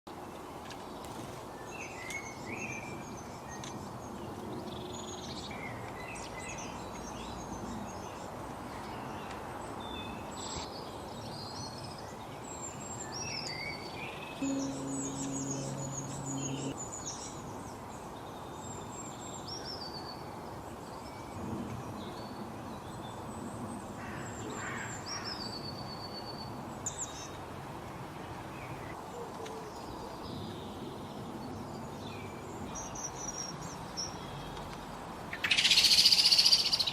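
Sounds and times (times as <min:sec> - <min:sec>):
outdoor background hiss: 0:00.1 - 0:36.9
small birds chirping: 0:04.6 - 0:16.8.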